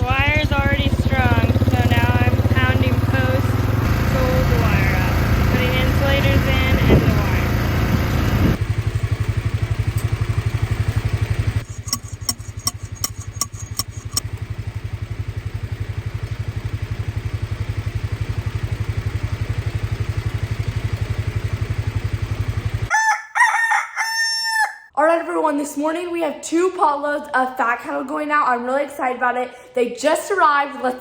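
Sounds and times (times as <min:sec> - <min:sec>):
engine idling: 0:00.0 - 0:22.9
post driver clanging on metal: 0:11.6 - 0:14.2.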